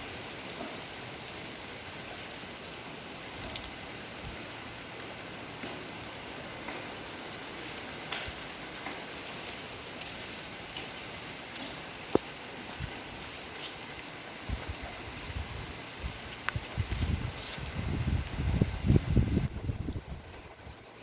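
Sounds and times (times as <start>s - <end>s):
rain drops ticking: 0.0s - 21.0s
steady rain falling: 0.0s - 21.0s.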